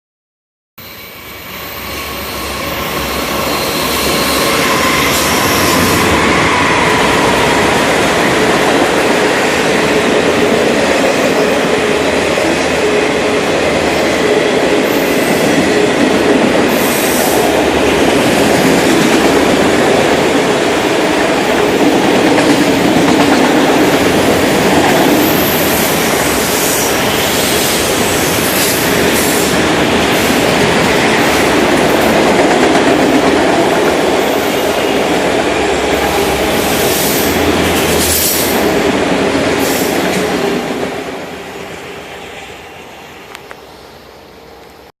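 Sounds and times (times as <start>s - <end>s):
train wheels squealing: 0.8s - 7.8s, 36.5s - 38.8s, 39.6s - 40.5s
freight train rumbling and clattering: 2.5s - 41.5s.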